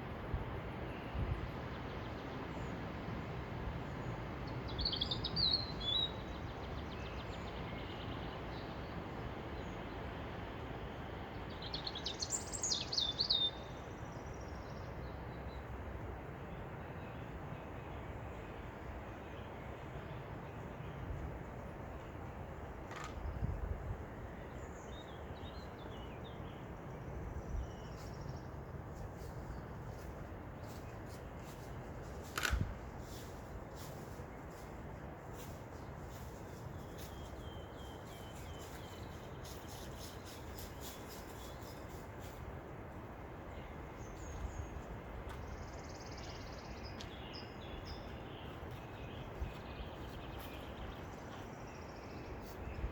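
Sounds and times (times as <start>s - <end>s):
wind noise: 0.0s - 1.7s, 22.8s - 24.3s, 28.7s - 43.1s
wind bumps on microphone: 22.9s - 24.0s, 32.2s - 33.2s.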